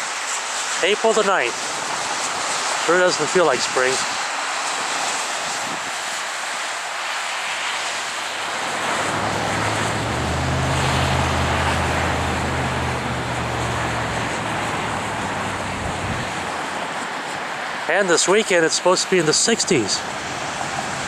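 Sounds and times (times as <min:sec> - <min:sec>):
wind blowing: 0:07.8 - 0:17.7
low engine hum: 0:08.4 - 0:16.9.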